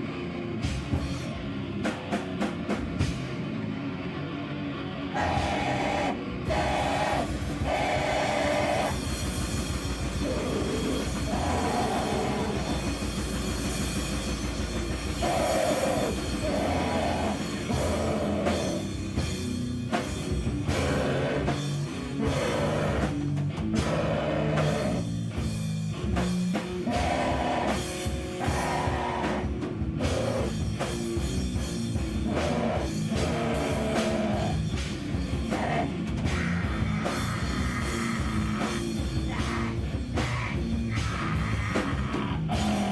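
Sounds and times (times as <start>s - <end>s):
live rock band playing: 0.0s - 42.9s
pounding drums: 5.2s - 42.9s.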